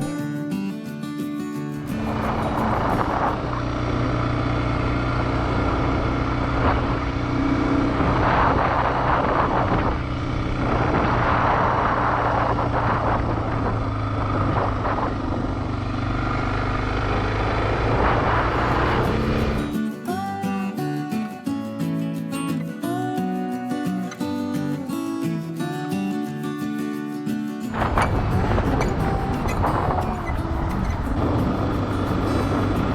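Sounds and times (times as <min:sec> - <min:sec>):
wind rush on microphone: 0:01.8 - 0:19.8, 0:27.7 - 0:32.9
motorcycle engine running: 0:01.8 - 0:19.9, 0:27.7 - 0:32.9.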